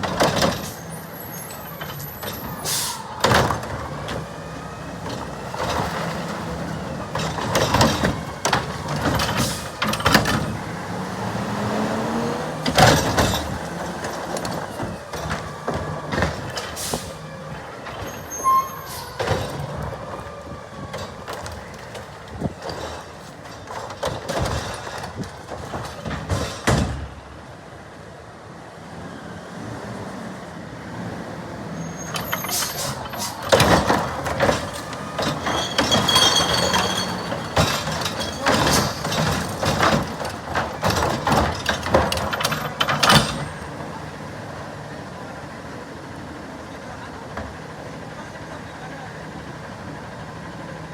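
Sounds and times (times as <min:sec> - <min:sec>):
garbage truck clanks and knocks: 0:00.0 - 0:27.6, 0:31.6 - 0:44.8
air brakes hissing: 0:00.5 - 0:03.3, 0:09.3 - 0:10.1, 0:16.6 - 0:17.4, 0:18.0 - 0:19.3, 0:31.7 - 0:33.8
high squeal: 0:17.9 - 0:19.4, 0:31.7 - 0:33.4, 0:35.0 - 0:39.1
metal bangs and clatter: 0:21.0 - 0:27.2, 0:32.1 - 0:43.8.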